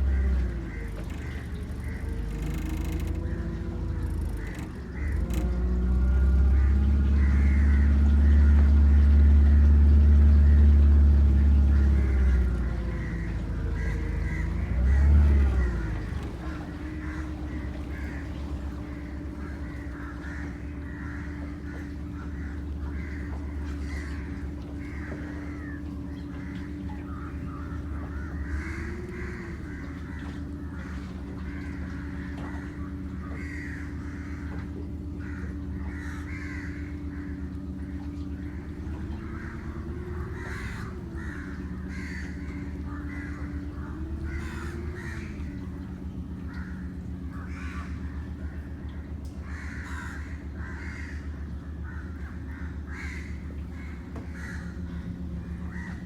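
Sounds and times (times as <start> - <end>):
birds chattering: 0.0 - 56.0
steady low hum: 0.0 - 56.0.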